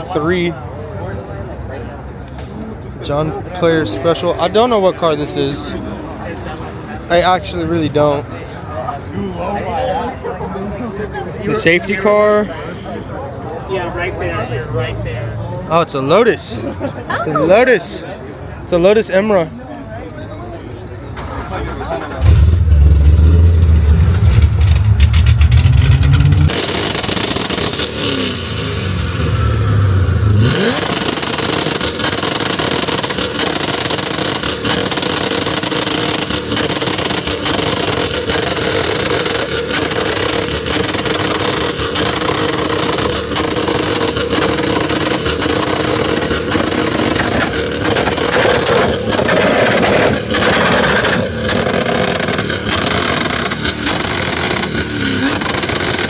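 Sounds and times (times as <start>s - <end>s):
car engine revving: 21.2s - 56.0s
sharp ticks: 30.6s - 56.0s.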